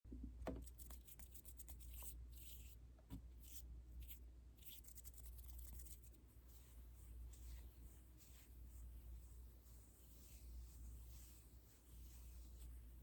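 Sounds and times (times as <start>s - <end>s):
low steady hum: 0.1s - 13.0s
scratchy brushing rustles: 3.4s - 13.0s.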